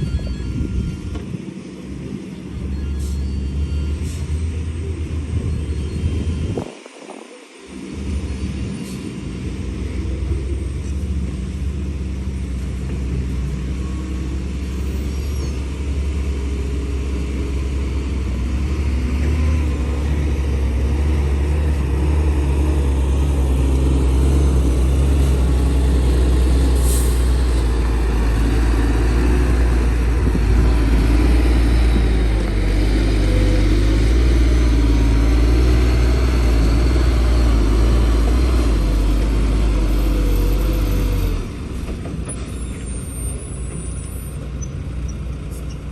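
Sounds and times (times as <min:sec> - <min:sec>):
heavy diesel engine running: 0:00.0 - 0:06.7, 0:07.7 - 0:45.9.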